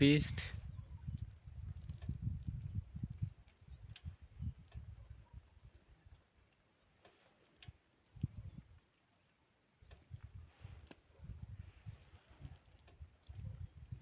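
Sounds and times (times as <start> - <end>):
crickets trilling: 0.0 - 14.0
faint clicks: 3.4 - 5.0, 6.0 - 8.3, 12.4 - 13.4.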